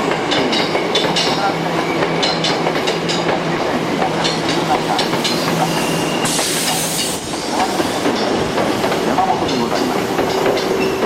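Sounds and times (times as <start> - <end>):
train wheels clicking over rail joints: 0.0 - 11.0
short hiss burst: 5.6 - 7.3.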